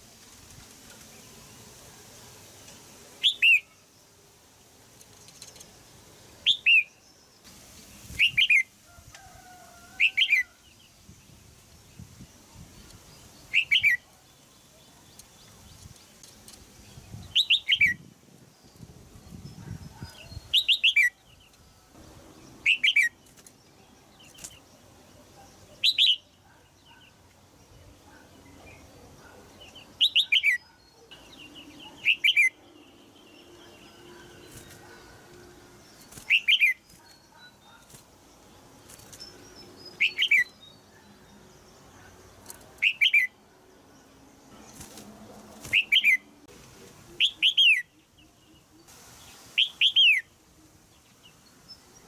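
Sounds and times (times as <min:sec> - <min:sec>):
bird chirping calls: 0:12.0 - 0:46.5, 0:47.1 - 0:50.4.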